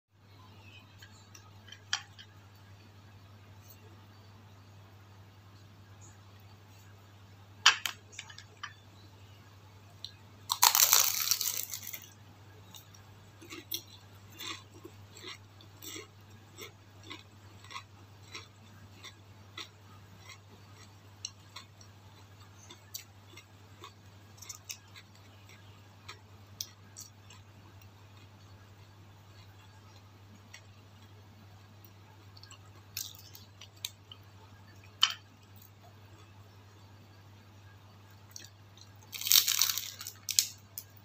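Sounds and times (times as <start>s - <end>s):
loud crunch of biting: 10.5s - 12.1s, 39.1s - 40.6s
chewing with soft crunches: 12.6s - 36.9s.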